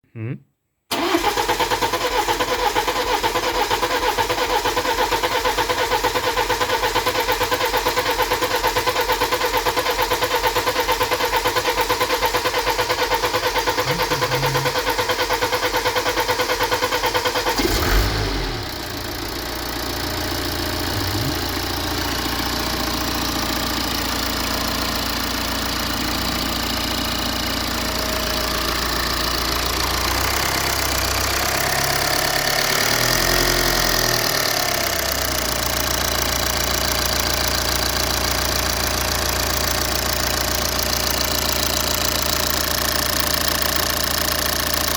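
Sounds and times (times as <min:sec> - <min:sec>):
diesel engine cranking: 0:00.9 - 0:04.2.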